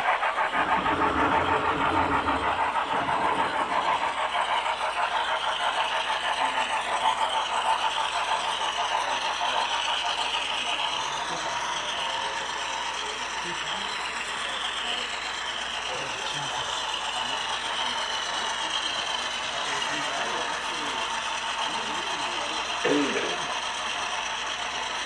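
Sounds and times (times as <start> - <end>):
model train wheels clicking: 0.0 - 25.0
low rumble: 0.5 - 6.5.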